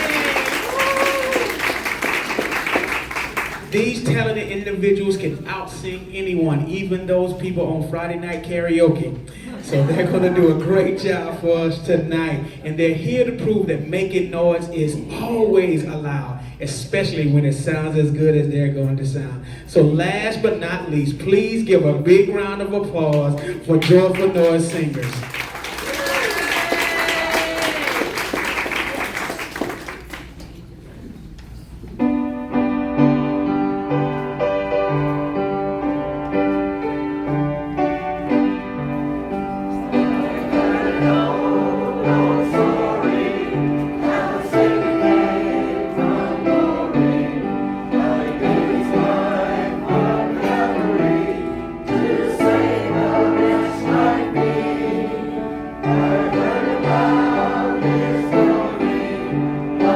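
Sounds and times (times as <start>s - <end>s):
instrumental accompaniment: 31.9s - 59.9s
choir singing: 39.7s - 59.9s.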